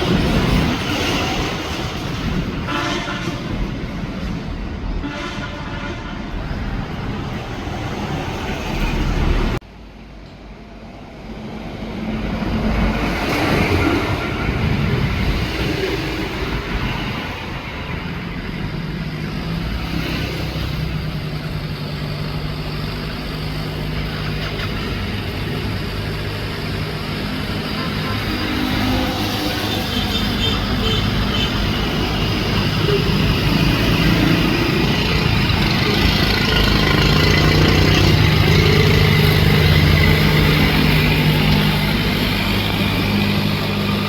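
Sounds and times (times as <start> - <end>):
boat engine running: 23.1 - 44.0.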